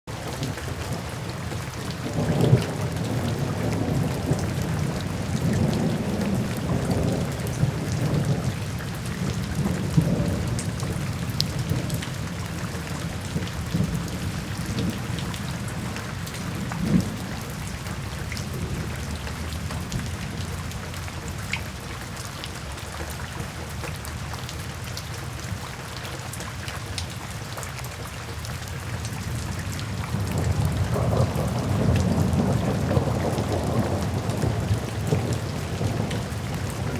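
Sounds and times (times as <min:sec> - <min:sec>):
raindrops ticking: 0:00.1 - 0:36.9
steady rain falling: 0:00.1 - 0:36.9
low rolling thunder: 0:00.4 - 0:21.2, 0:29.0 - 0:36.9.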